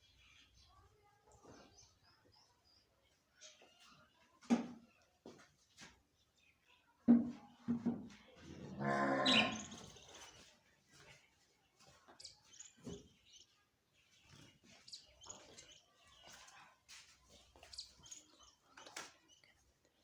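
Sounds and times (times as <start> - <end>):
parrot calling: 8.9 - 9.8
soft chirps and clicks: 17.6 - 20.0.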